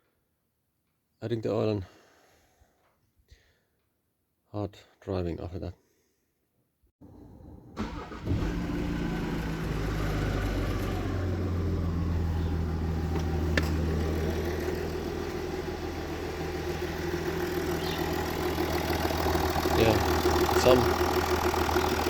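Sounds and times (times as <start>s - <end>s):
diesel engine starting and idling: 7.0s - 22.0s
engine ticking: 7.8s - 22.0s.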